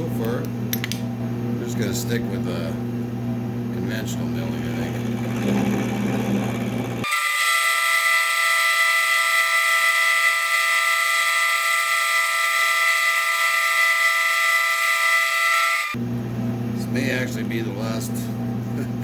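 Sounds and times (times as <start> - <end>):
milling machine hum: 0.9 - 19.0
high-pitched milling whine: 3.7 - 16.0.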